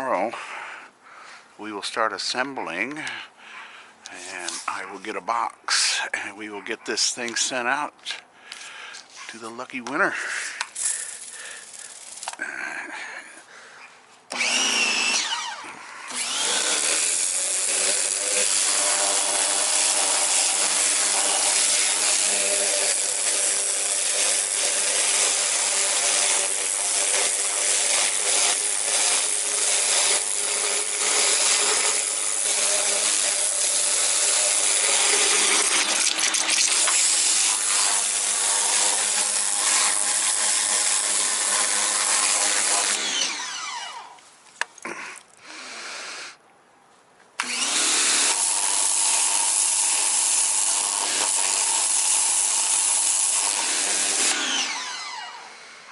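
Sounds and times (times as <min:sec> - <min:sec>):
power tool motor whining: 0:10.7 - 0:12.4, 0:14.3 - 0:44.2, 0:47.4 - 0:55.9.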